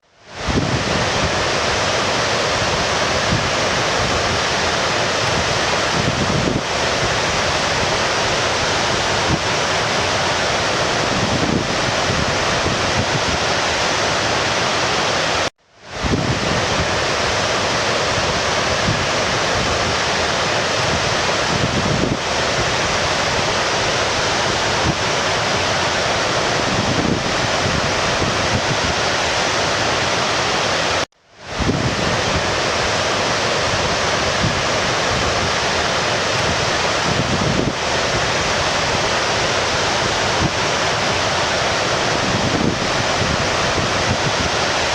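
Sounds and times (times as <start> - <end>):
stream water rushing: 0.2 - 44.9.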